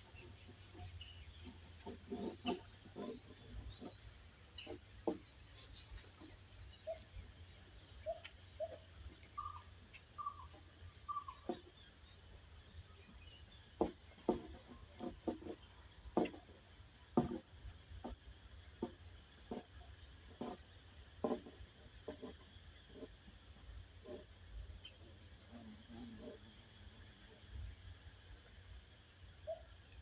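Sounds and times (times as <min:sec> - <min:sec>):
bird chirping low: 0:00.0 - 0:13.8.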